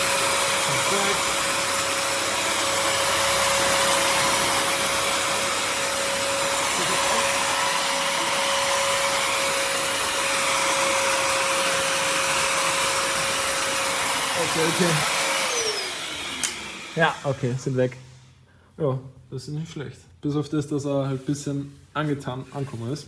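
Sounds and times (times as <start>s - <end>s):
wet-dry vacuum running: 0.0s - 18.3s.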